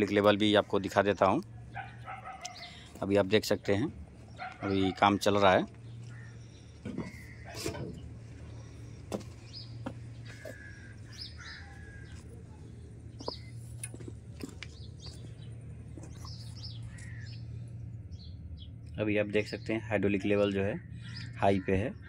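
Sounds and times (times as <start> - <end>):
birds chirping: 0.0 - 22.0
steady low hum: 5.4 - 22.0.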